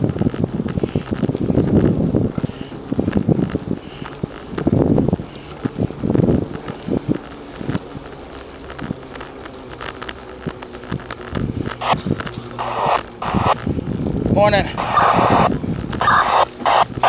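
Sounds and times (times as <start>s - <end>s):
bicycle clicks and rattles: 0.0s - 14.8s, 15.5s - 17.0s
bicycle rolling noise: 0.0s - 17.0s
wind buffeting microphone: 0.0s - 17.0s.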